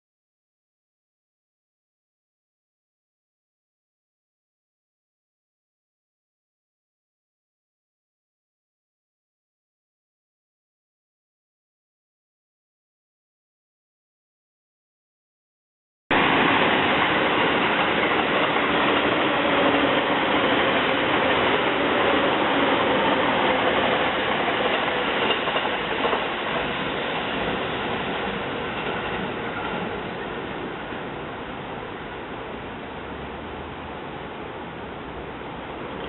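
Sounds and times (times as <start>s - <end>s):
electric train running past: 16.1s - 36.0s.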